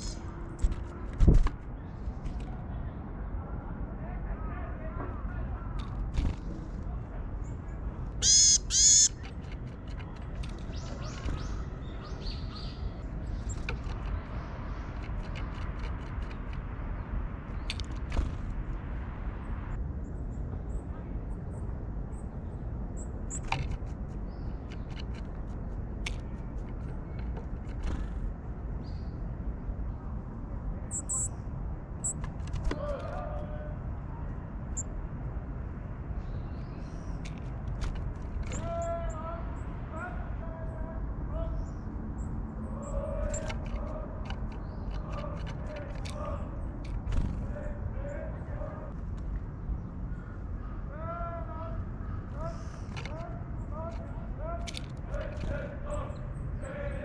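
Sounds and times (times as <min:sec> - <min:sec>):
low outdoor rumble: 0:00.0 - 0:57.0
birds calling nasally: 0:05.7 - 0:18.8, 0:30.8 - 0:33.8, 0:36.2 - 0:57.0
high bird chirps: 0:08.2 - 0:09.4, 0:30.9 - 0:31.4.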